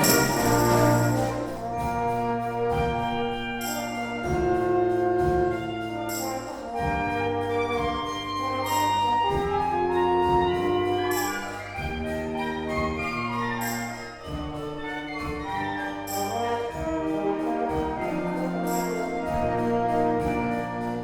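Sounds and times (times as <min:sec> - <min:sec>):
cymbal crashes: 0:00.0 - 0:04.4
brass chords: 0:00.0 - 0:21.0.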